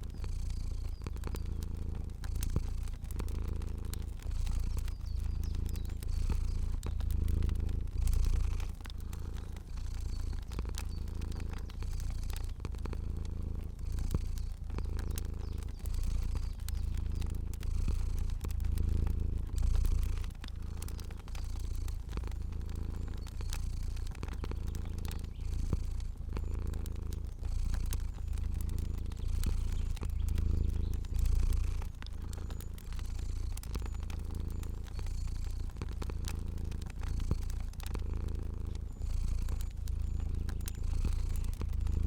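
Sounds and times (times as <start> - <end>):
cat purring: 0.0 - 42.0
wood fire crackling: 0.0 - 42.0.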